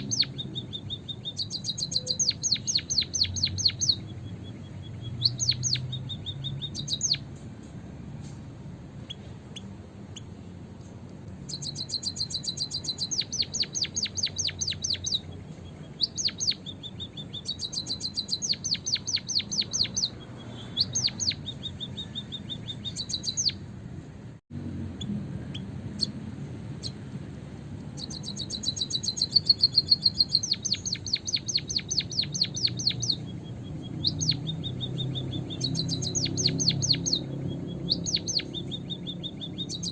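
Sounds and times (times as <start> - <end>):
bird rapid high chirps: 0.0 - 8.3, 8.9 - 10.5, 11.3 - 23.7, 25.0 - 27.1, 27.8 - 39.9.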